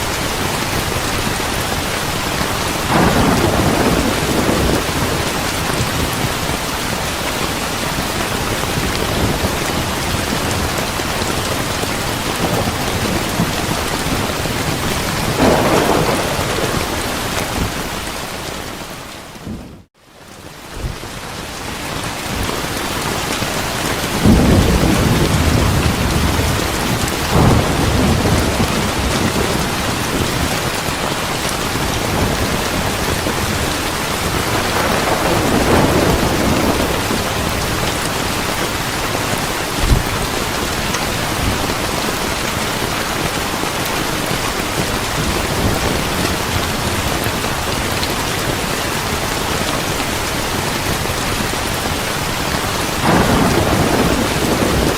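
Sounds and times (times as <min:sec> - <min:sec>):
heavy rain: 0:00.0 - 0:54.9
thunder rumbling: 0:00.4 - 0:19.9, 0:23.8 - 0:50.0, 0:52.8 - 0:54.9
sharp thunder crack: 0:02.9 - 0:06.0, 0:15.3 - 0:18.0, 0:24.2 - 0:30.5, 0:34.5 - 0:37.7, 0:53.0 - 0:54.9.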